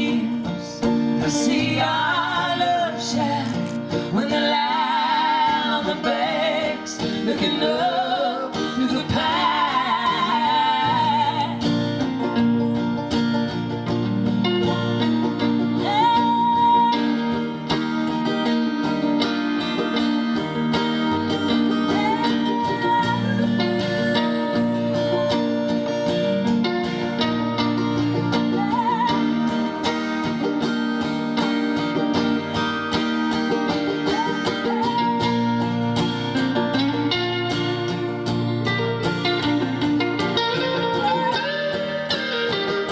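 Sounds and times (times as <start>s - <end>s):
band playing guitars: 0.0s - 42.9s
sliding guitar lead line: 0.0s - 42.9s.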